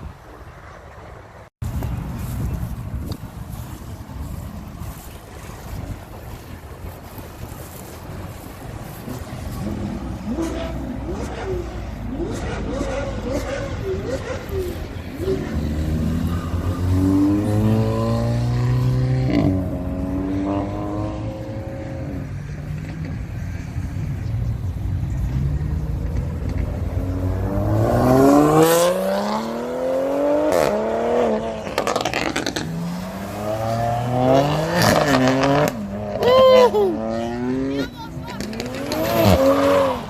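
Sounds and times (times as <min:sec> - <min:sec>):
car engines accelerating hard: 0:01.8 - 0:40.0.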